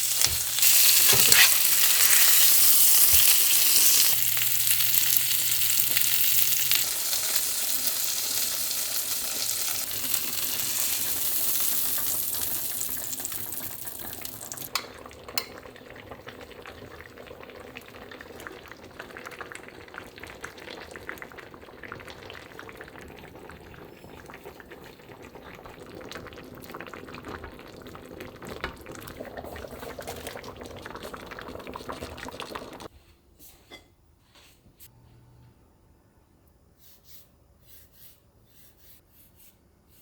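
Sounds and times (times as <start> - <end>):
liquid boiling in a pot: 0.0 - 32.9.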